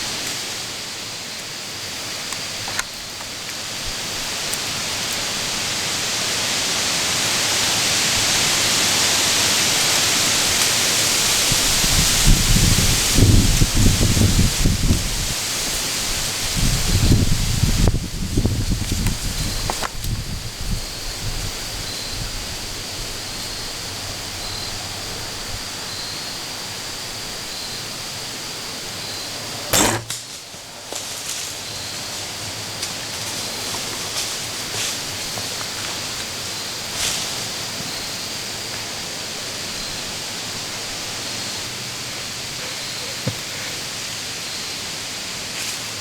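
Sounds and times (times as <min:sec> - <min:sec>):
wind through trees: 0:00.0 - 0:46.0
wind hitting microphone: 0:11.5 - 0:23.2.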